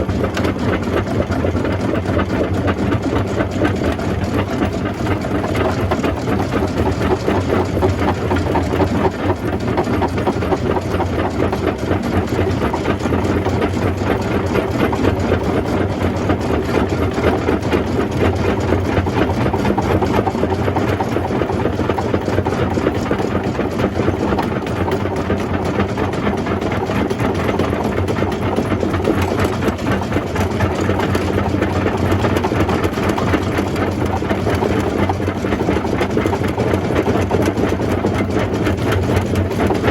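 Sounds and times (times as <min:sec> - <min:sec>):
jaw crusher crushing rock: 0:32.1 - 0:39.9.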